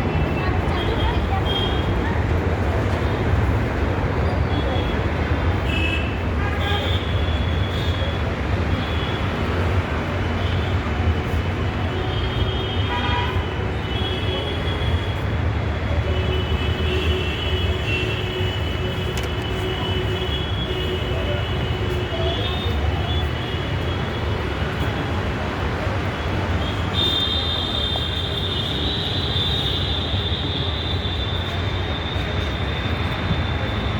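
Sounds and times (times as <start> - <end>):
moving vehicle rumble: 13.6 - 33.9.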